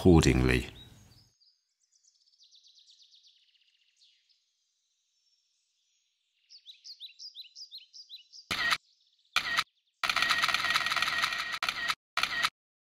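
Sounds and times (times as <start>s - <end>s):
bird chirping: 0.0s - 10.0s.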